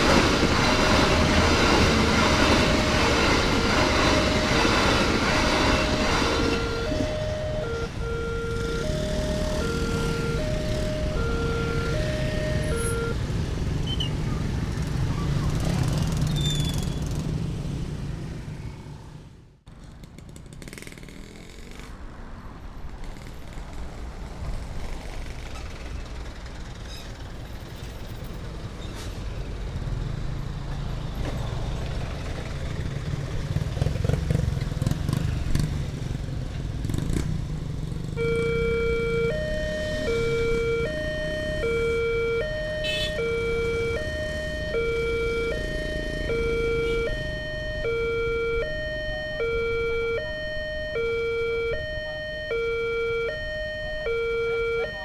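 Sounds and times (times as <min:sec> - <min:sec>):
two-tone level crossing siren: 0:00.0 - 0:13.2, 0:38.2 - 0:55.0.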